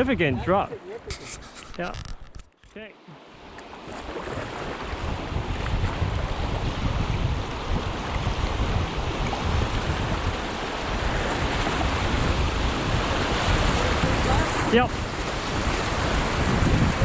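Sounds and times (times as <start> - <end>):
wind rumbling on microphone: 3.9 - 17.0
rushing whitewater: 8.0 - 17.0.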